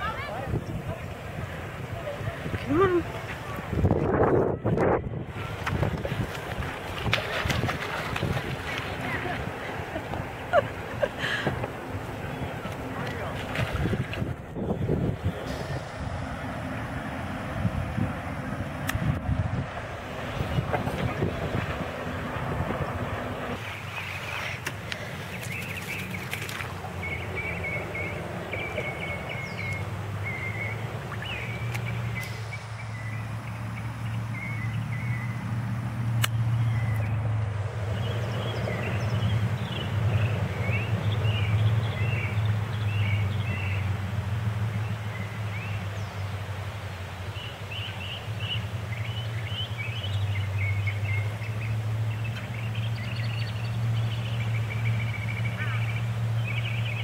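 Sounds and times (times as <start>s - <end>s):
steady low rumble: 0.0s - 24.0s, 26.1s - 44.7s
small birds chirping: 23.7s - 35.4s.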